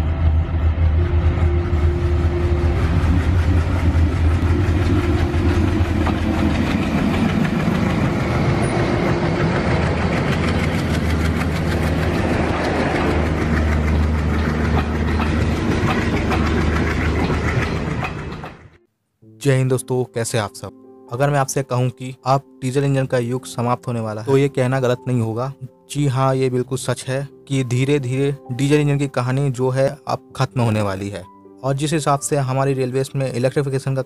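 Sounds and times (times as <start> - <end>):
diesel locomotive engine drone: 0.0 - 18.9
train wheels clattering: 2.2 - 18.8.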